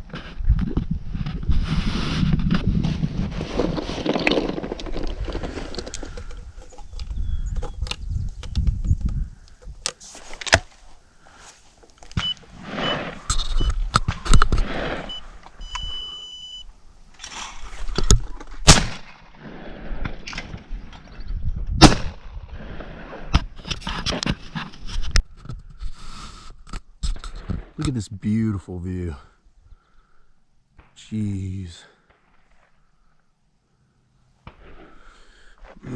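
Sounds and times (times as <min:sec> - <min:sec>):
wind: 0:00.0 - 0:35.9
gun handling noise: 0:03.6 - 0:11.0, 0:11.7 - 0:12.5
electronic beeps: 0:12.2 - 0:16.7
shotgun shots: 0:18.6 - 0:19.4, 0:21.8 - 0:22.2.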